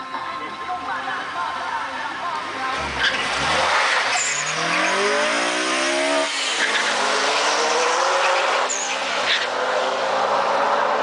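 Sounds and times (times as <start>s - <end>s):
cars accelerating hard: 2.5s - 11.0s.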